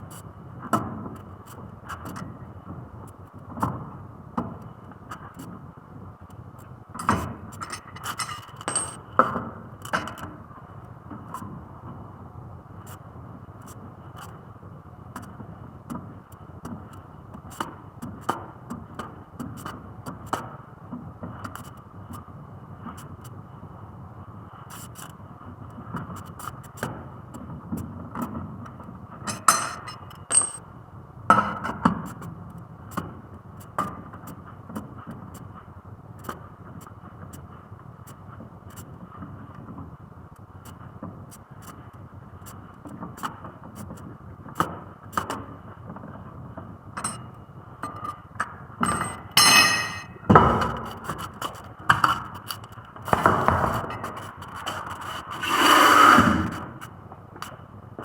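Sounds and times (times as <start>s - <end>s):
steady background hum: 4.1s - 14.4s, 28.8s - 31.6s, 44.7s - 55.4s
tools clinking on metal: 7.0s - 9.0s, 29.3s - 30.6s, 47.0s - 47.2s, 47.8s - 48.2s, 48.8s - 50.2s
short metallic ring: 29.3s - 30.6s, 47.0s - 47.2s, 48.8s - 50.2s.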